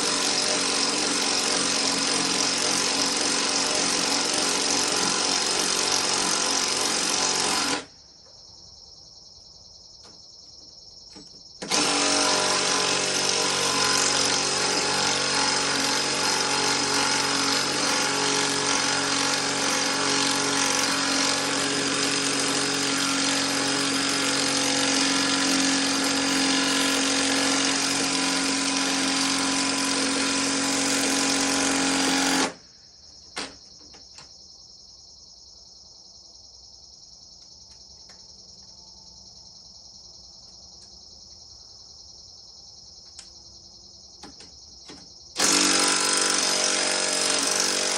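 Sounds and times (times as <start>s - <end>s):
crickets chirping: 7.8s - 11.7s, 32.6s - 45.4s
impact driver hammering: 11.2s - 32.6s, 44.2s - 47.9s.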